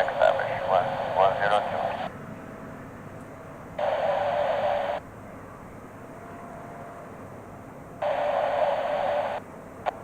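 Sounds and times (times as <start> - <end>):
faint radio background noise: 0.0 - 2.1, 3.8 - 5.0
radio static hiss bursts: 0.0 - 2.1, 3.8 - 5.0, 8.0 - 10.0.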